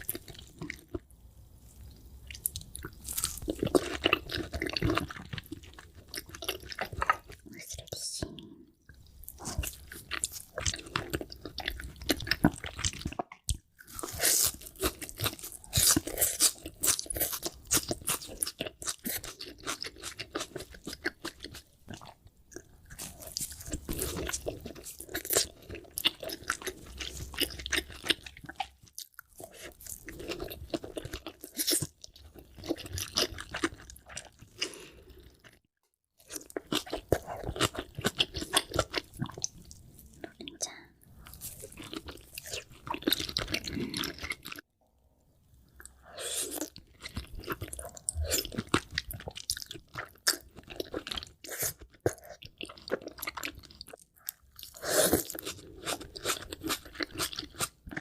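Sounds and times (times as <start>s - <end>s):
chewing with crunchy bites: 0.0s - 7.6s, 8.2s - 35.6s, 36.2s - 44.7s, 45.7s - 58.0s
wet mouth sounds: 45.7s - 50.4s.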